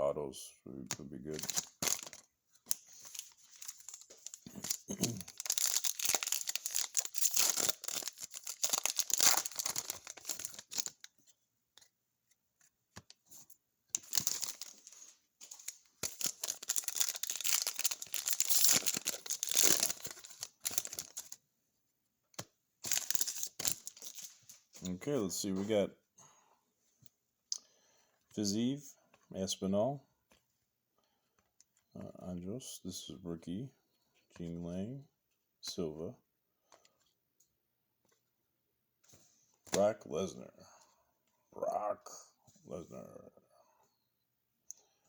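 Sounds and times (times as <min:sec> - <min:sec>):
wrappers tearing and crinkling: 0:01.3 - 0:11.0, 0:14.0 - 0:21.4, 0:22.8 - 0:24.5.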